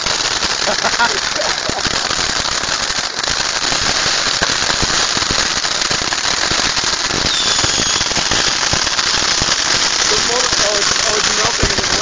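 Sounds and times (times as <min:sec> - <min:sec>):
fireworks crackling and popping: 0:00.0 - 0:12.0
high falling whistle: 0:07.3 - 0:08.6.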